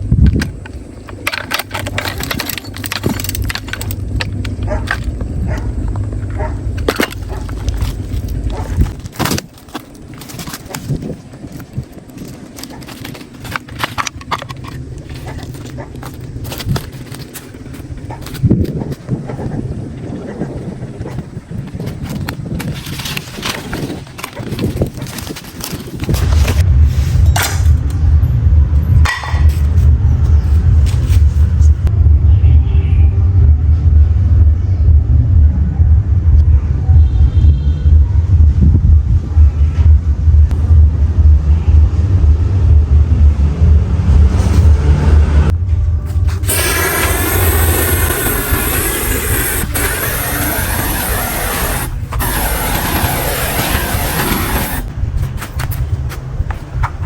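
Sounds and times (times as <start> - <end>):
low rumble: 0.0 - 9.2, 26.2 - 56.0.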